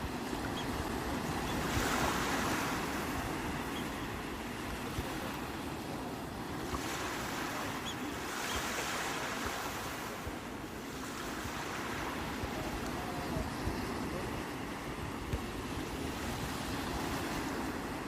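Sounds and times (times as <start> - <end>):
sea waves washing ashore: 0.0 - 18.0.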